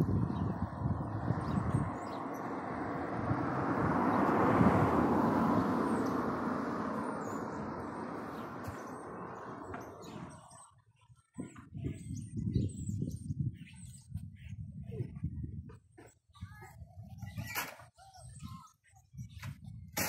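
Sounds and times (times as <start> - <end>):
vehicle passing by: 0.0 - 10.6.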